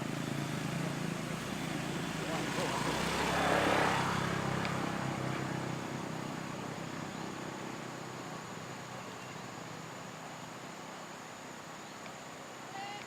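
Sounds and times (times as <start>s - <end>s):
vehicle engine running: 0.0s - 10.7s.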